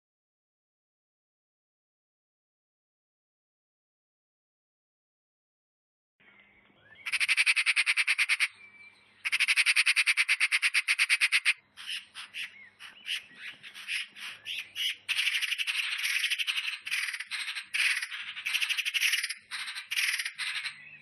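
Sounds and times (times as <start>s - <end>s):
bird rattling trills: 7.0s - 8.5s, 9.2s - 21.0s.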